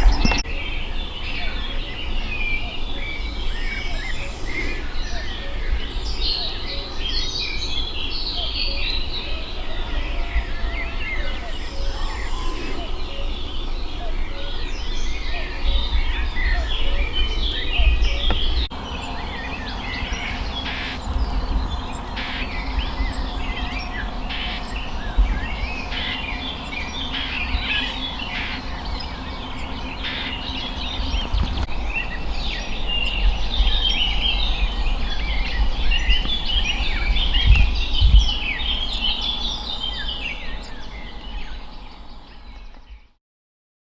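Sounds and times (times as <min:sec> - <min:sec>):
low rumble: 0:00.0 - 0:00.7
songbirds singing and chirping: 0:00.0 - 0:43.2.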